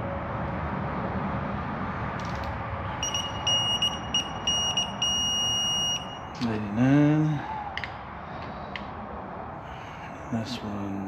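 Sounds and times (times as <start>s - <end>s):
long steady beep: 3.0s - 6.4s
short high beeps: 3.0s - 6.4s.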